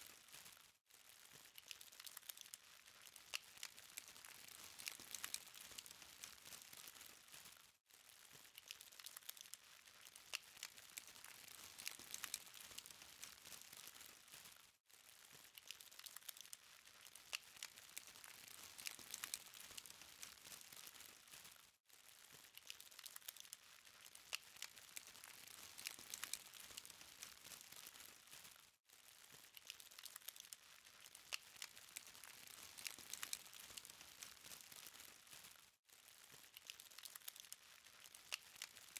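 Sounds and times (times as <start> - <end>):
charcoal fire crackling: 1.2 - 38.9.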